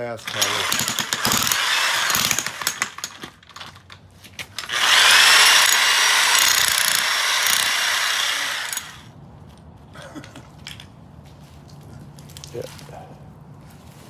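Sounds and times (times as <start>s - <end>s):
power tool running: 0.2s - 3.3s, 4.6s - 9.1s.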